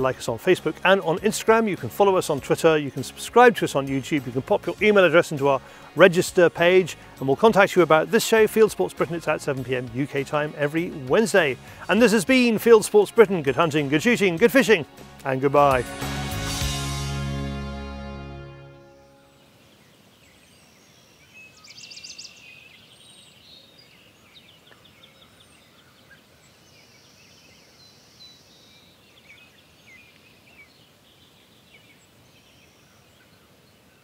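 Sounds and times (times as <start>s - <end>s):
birdsong chirps and trills: 0.0s - 14.9s, 18.8s - 34.0s
music: 0.0s - 19.4s.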